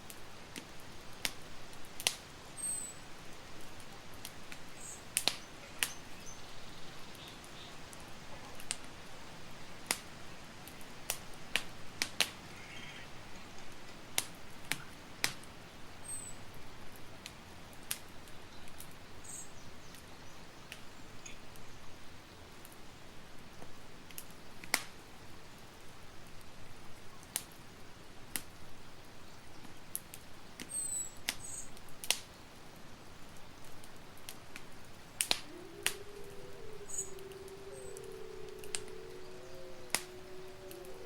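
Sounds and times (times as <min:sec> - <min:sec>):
campfire crackling and popping: 0:00.0 - 0:15.6, 0:16.6 - 0:20.1, 0:23.6 - 0:25.0, 0:29.6 - 0:41.0
fire hissing: 0:34.9 - 0:41.0.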